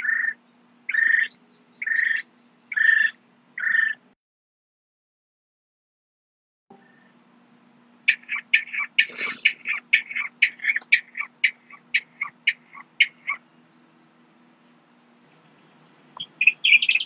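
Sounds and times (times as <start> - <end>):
bird calling short notes: 8.1 - 13.4.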